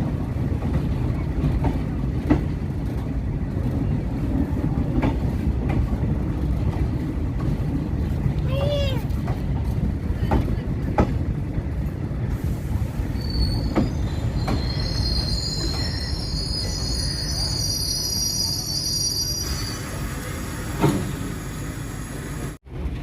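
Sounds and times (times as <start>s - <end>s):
rail joint clacks: 0.0s - 17.8s
train rumbling on rails: 0.0s - 23.0s
high metallic wheel squeal: 13.1s - 20.0s.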